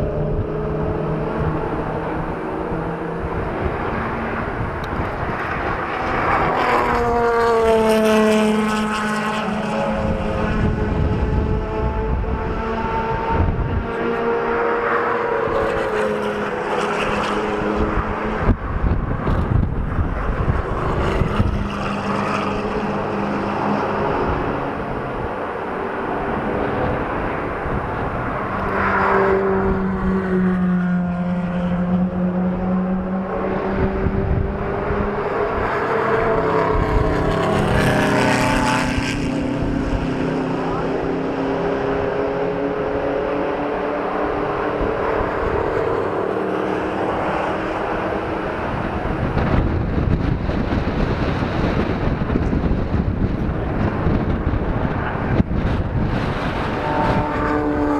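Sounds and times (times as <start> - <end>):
car engines revving: 0.0 - 57.9.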